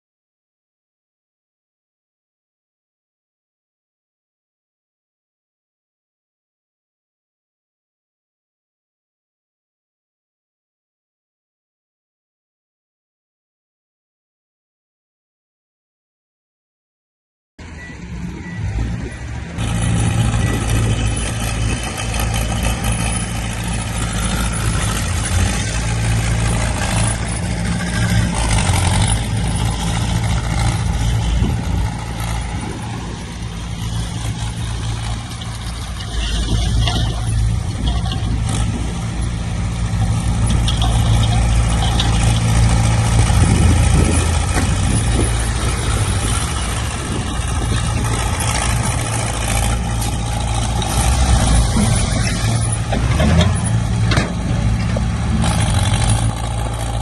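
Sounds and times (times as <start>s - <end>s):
heavy diesel machinery running: 17.6s - 57.0s.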